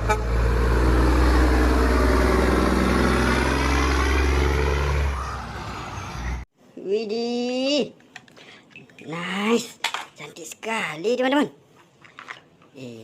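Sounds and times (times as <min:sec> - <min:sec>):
truck engine running: 0:00.0 - 0:05.2.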